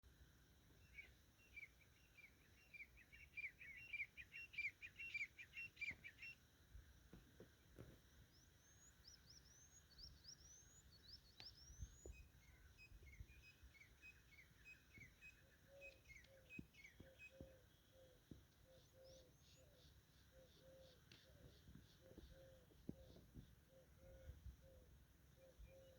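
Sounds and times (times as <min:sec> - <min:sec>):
birds chirping: 0:07.7 - 0:25.9.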